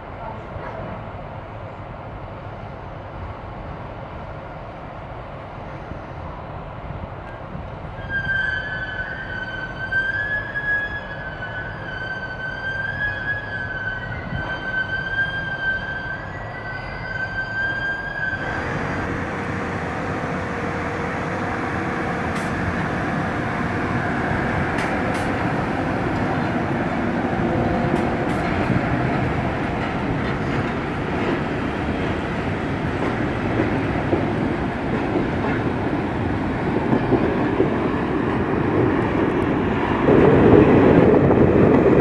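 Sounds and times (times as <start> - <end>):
high-pitched train tone: 8.0 - 31.4
train rushing by: 18.0 - 42.0.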